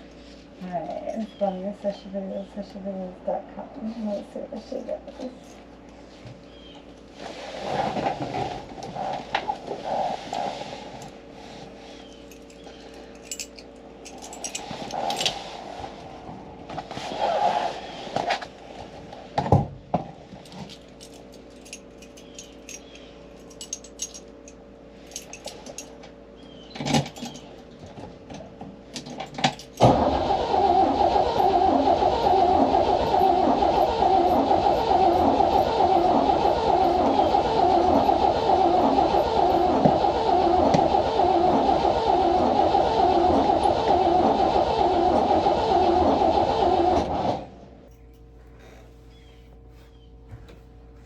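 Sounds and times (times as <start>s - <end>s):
starter cranking car engine: 29.0s - 47.7s.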